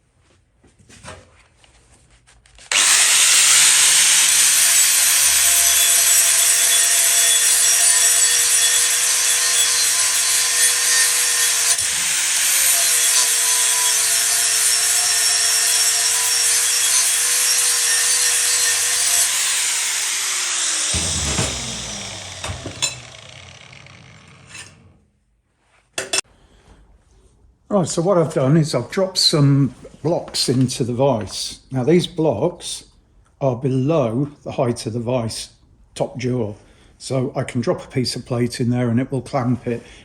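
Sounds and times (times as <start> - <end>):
angle grinder sanding metal: 2.7 - 25.0.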